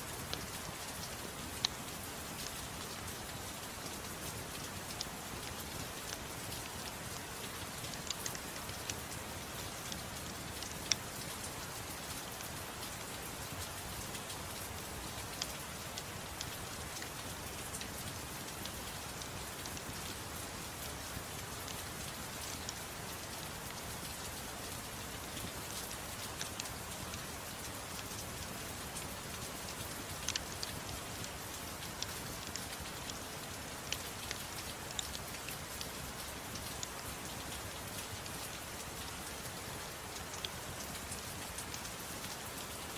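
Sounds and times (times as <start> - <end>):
soft rain hiss: 0.0 - 42.9.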